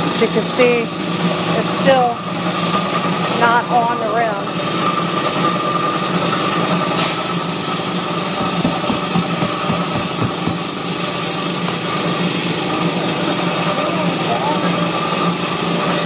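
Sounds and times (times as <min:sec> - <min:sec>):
air compressor running: 0:00.0 - 0:16.0
compressed air hissing: 0:07.0 - 0:11.8.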